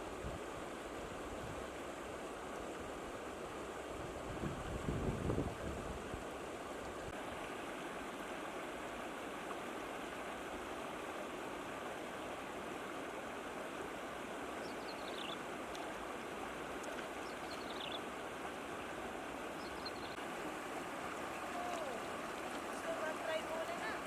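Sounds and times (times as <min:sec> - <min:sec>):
flowing water rushing: 0:05.9 - 0:24.0.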